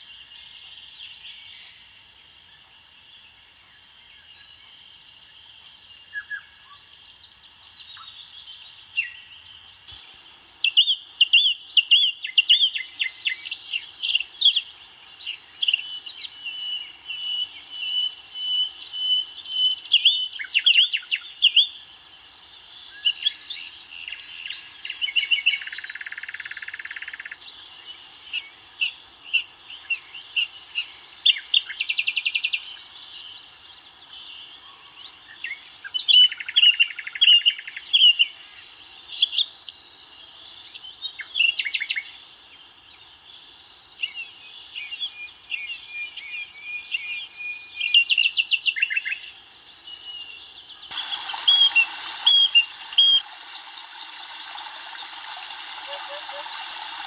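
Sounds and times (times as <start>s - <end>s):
songbirds singing and calling: 0.0s - 57.0s
buzzy bird trill: 50.9s - 57.0s.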